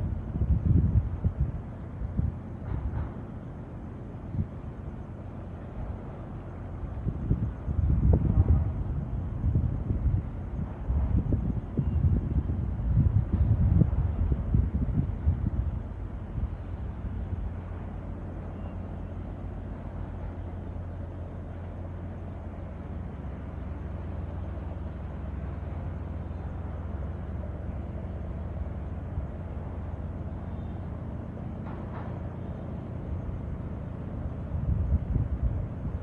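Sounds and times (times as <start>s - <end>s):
wind and waves rumbling: 0.0s - 36.0s.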